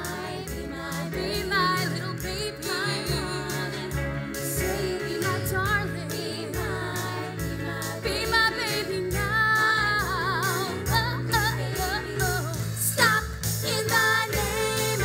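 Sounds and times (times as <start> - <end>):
live band accompaniment: 0.0 - 15.0
women singing with vibrato: 0.0 - 15.0.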